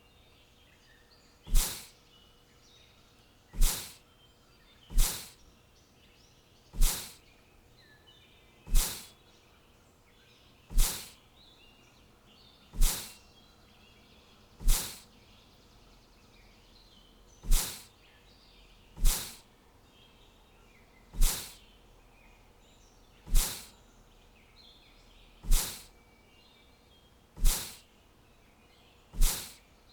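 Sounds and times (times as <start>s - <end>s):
faint birdsong chirping: 0.0s - 29.9s.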